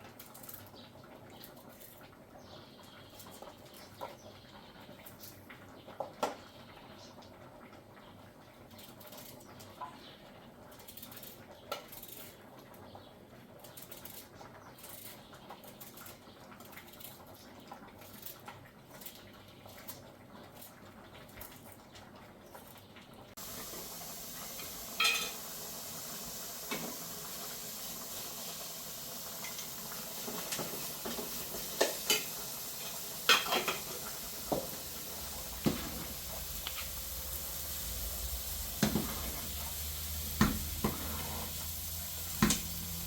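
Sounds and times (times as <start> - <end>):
frying sizzle: 0.0 - 43.0
metal utensil clinking on pot: 25.0 - 25.4, 31.8 - 34.0.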